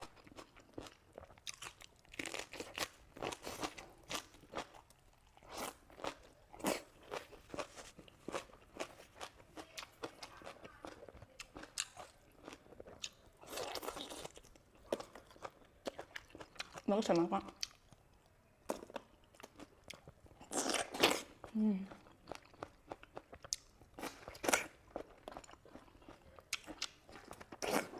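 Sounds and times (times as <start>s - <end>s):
person chewing crunchy food: 0.0s - 16.9s, 17.5s - 27.9s.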